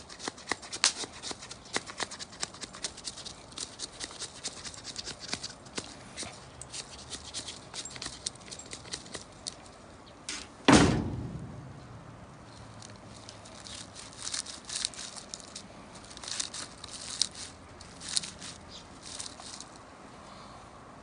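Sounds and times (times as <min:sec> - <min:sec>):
heavy thud: 0:10.7 - 0:12.1.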